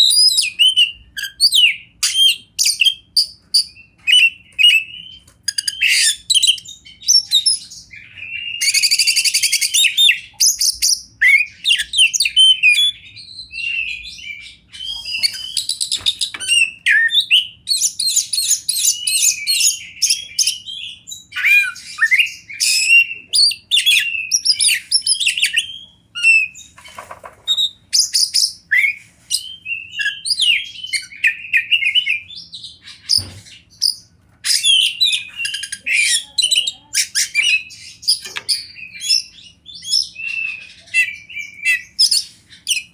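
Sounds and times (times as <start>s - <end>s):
bird singing varied whistled song: 0.0s - 26.7s, 27.5s - 42.9s.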